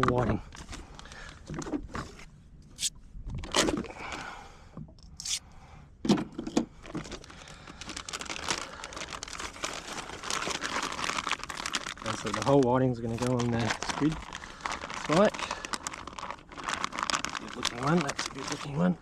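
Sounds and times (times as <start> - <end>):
plastic bag crinkling: 7.0 - 19.0.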